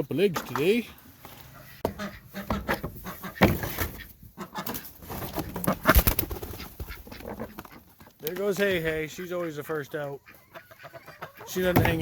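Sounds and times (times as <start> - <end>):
chickens clucking: 0.0 - 12.0
knocks and clatter of coop: 1.8 - 8.9, 10.3 - 12.0.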